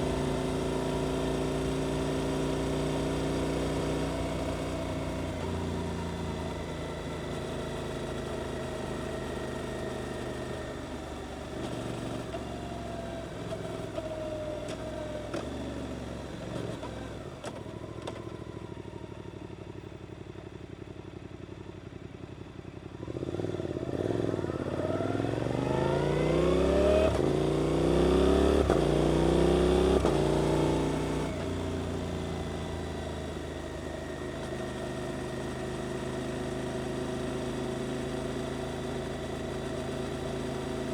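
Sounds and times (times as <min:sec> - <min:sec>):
motorcycle engine accelerating: 0:22.9 - 0:40.9.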